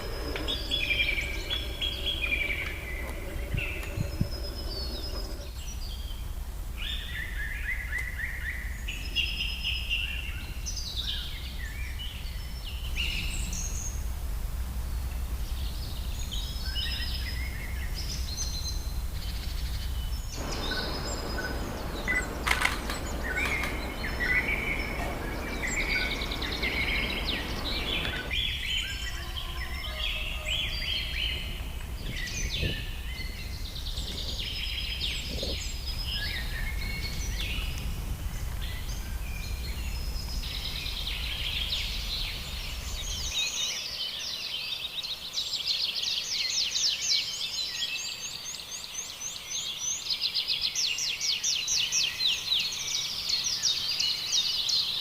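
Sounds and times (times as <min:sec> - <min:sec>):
low rumble: 0:00.0 - 0:07.5, 0:08.8 - 0:43.4
birds chirping and trilling: 0:00.0 - 0:55.0
rushing noise: 0:20.3 - 0:34.0.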